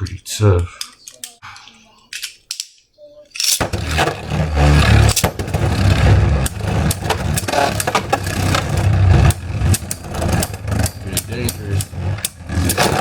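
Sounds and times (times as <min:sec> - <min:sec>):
sharp clicks of tops hitting: 0:02.2 - 0:13.0
spinning tops whirring: 0:03.4 - 0:13.0.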